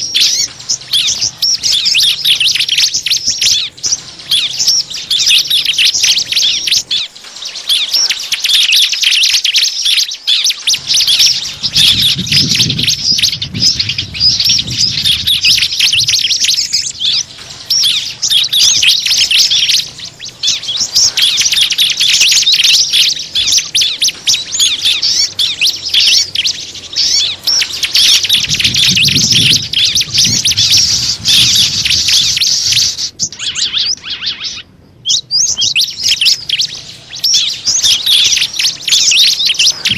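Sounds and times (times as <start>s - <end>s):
small birds chirping and twittering: 0.0s - 39.9s
low rumble: 10.8s - 21.1s.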